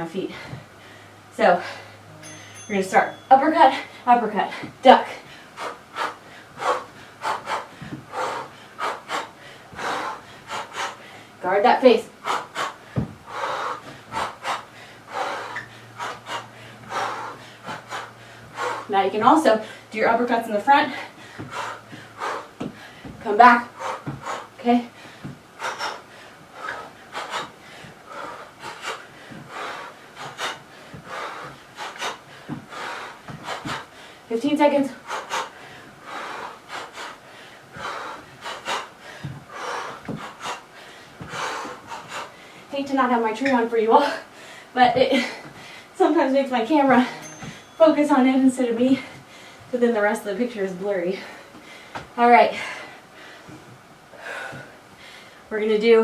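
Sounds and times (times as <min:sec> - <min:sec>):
person breathing hard: 0:00.3 - 0:02.2, 0:03.7 - 0:11.4, 0:12.1 - 0:18.9, 0:20.8 - 0:34.3, 0:34.9 - 0:42.7, 0:44.1 - 0:46.0, 0:48.9 - 0:49.7, 0:51.1 - 0:55.5.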